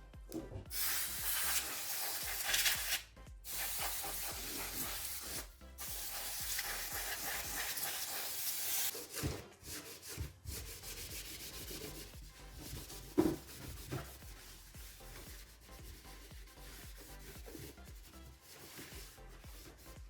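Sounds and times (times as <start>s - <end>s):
spraying hiss: 0.7s - 8.9s
hands rubbing and scrubbing: 2.2s - 20.0s.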